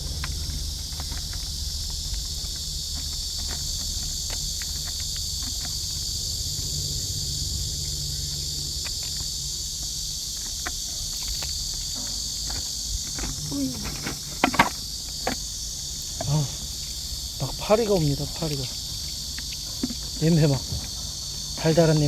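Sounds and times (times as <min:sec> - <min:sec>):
low rumble: 0:00.0 - 0:11.9
chorus of insects: 0:00.0 - 0:22.0.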